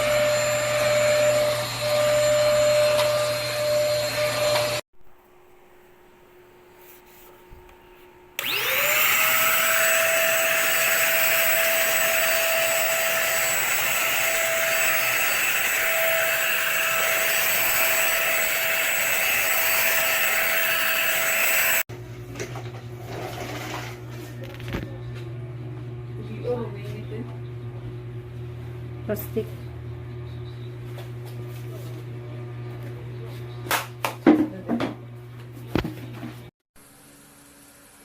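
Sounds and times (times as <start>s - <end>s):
vacuum cleaner motor whining: 0.0s - 4.8s, 8.4s - 21.9s.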